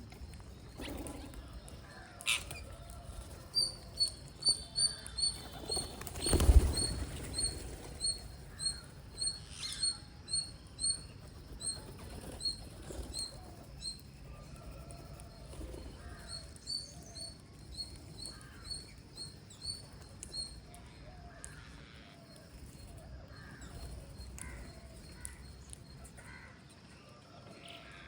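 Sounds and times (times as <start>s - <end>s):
wings fluttering: 0.0s - 9.2s, 10.7s - 16.8s.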